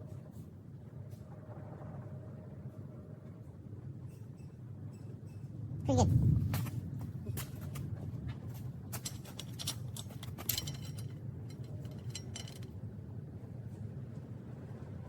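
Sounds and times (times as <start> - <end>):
low steady hum: 5.5 - 15.0
light clicks and clinks: 8.5 - 12.8.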